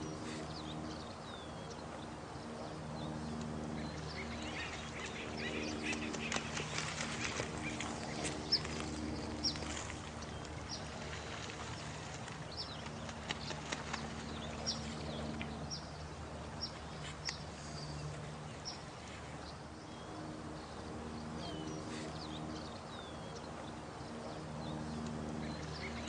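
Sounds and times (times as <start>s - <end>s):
soft background wash: 0.0s - 26.0s
steady low hum: 0.0s - 26.0s.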